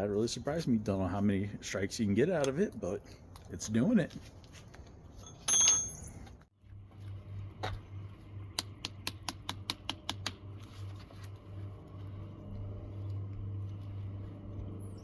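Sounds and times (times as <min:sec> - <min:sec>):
steady low hum: 0:06.5 - 0:15.0.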